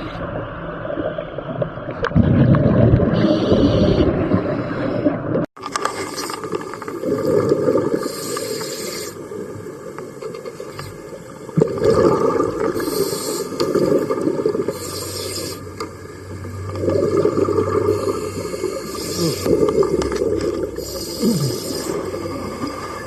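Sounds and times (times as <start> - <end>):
regulator hissing inhalations: 8.0 - 9.2, 12.8 - 13.6, 14.7 - 15.6, 18.0 - 19.6, 20.8 - 22.7
bubbling exhalations: 11.6 - 15.6, 16.8 - 23.0.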